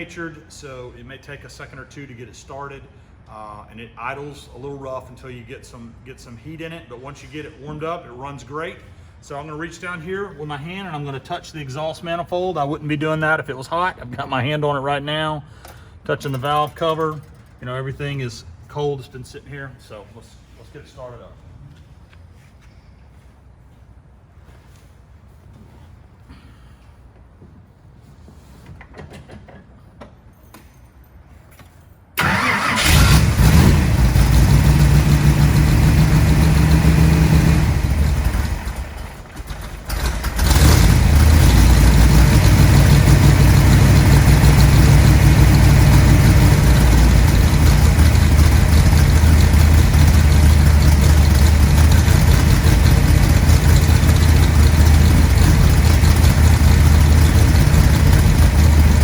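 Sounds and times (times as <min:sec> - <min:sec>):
car engine starting and idling: 0:32.2 - 0:59.0.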